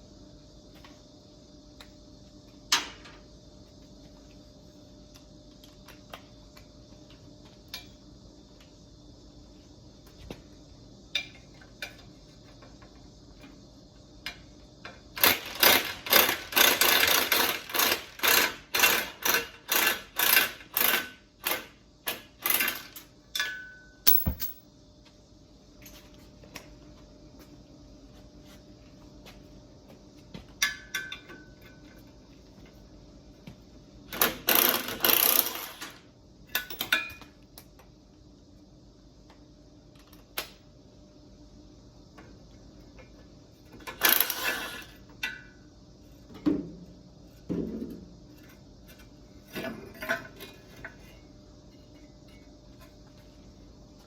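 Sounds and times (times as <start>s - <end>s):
hand tools striking metal: 23.4s - 24.6s.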